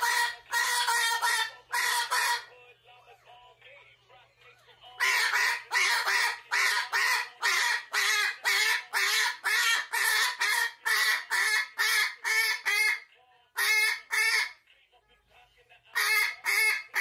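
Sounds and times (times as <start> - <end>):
cockatoo screaming: 0.0 - 2.5, 5.0 - 13.0.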